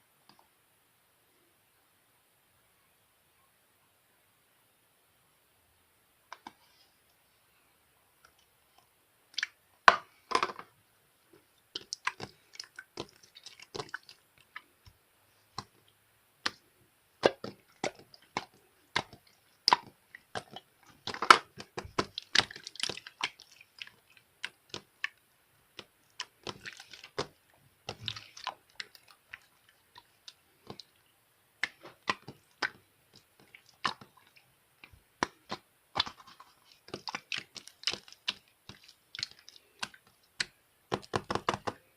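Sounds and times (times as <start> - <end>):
slime crackling and popping: 17.2 - 31.0, 31.6 - 41.8.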